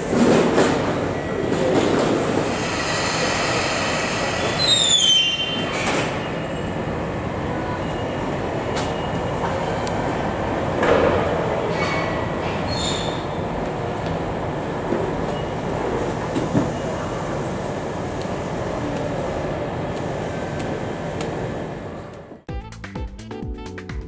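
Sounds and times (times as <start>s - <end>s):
train wheels and motors running: 0.0s - 22.4s
high-pitched wheel squeals: 4.0s - 6.8s, 12.7s - 13.4s.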